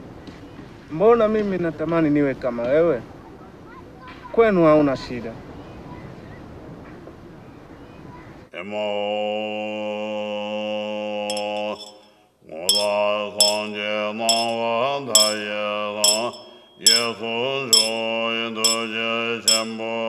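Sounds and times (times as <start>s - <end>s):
deep chanting voice: 8.5s - 20.0s
small bell struck: 11.3s - 12.1s, 12.7s - 20.0s.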